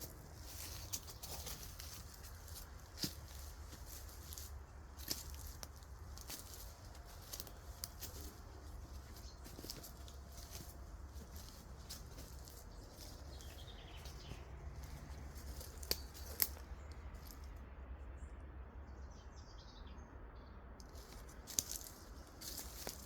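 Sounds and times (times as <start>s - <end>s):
faint birds chirping: 0.0s - 17.6s, 19.0s - 23.0s
low wind rumble: 0.0s - 18.4s.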